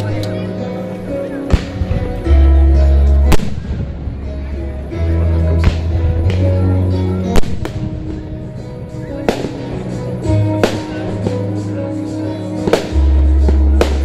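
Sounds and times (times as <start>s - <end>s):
music with sustained bass notes: 0.0s - 14.0s
fireworks bursting with bangs: 1.4s - 2.4s, 3.2s - 4.4s, 5.6s - 6.7s, 7.3s - 14.0s.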